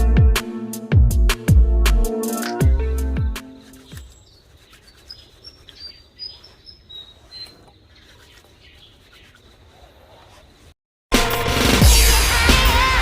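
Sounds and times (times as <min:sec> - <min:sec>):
faint high bird chirps: 0:03.8 - 0:09.6.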